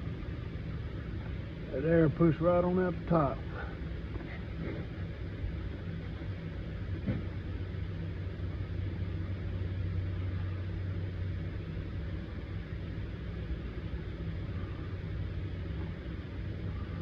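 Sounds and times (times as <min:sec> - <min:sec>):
electric pump motor humming: 0:00.0 - 0:17.0.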